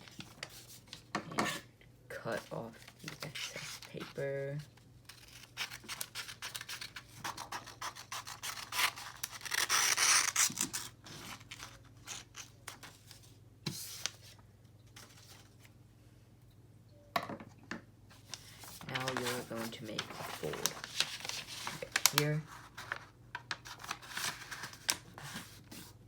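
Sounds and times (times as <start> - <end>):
paper rustling: 0.0 - 1.0, 18.2 - 26.0
scissors snipping paper: 5.1 - 10.9.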